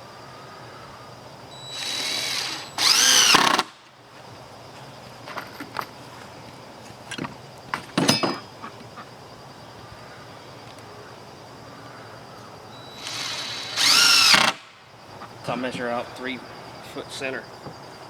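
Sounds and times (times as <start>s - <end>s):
power drill spinning up: 1.5s - 3.7s, 12.9s - 14.7s.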